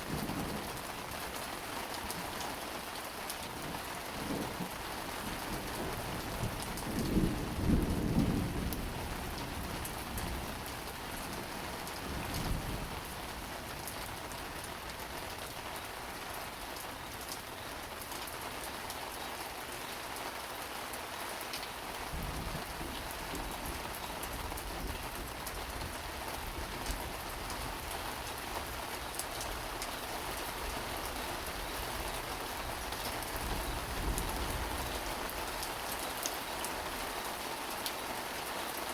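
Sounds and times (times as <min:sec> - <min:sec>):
rain hissing and pattering: 0:00.0 - 0:38.9
thunder rumbling: 0:05.4 - 0:10.8.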